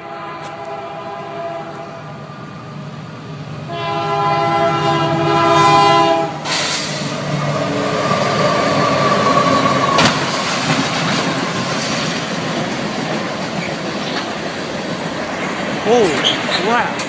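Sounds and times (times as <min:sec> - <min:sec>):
train air horn: 0:00.0 - 0:02.1, 0:03.7 - 0:07.0
train rushing by: 0:00.0 - 0:17.0.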